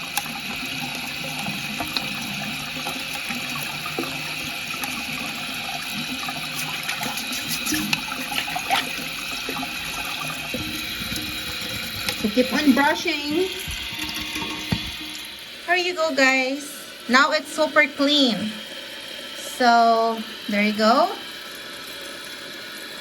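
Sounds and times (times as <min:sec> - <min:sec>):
water running in toilet tank: 0:00.0 - 0:23.0
toothbrush scrubbing: 0:01.3 - 0:15.1.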